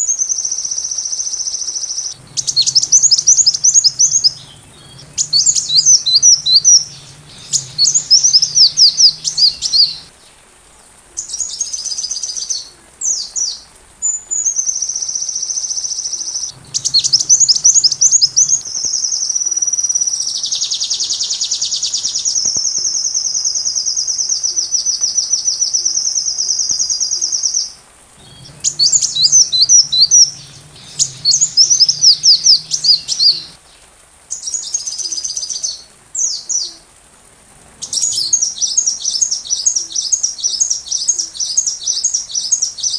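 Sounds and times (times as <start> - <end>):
bird chirps and trills: 2.2 - 10.1, 16.5 - 19.1, 28.2 - 33.6.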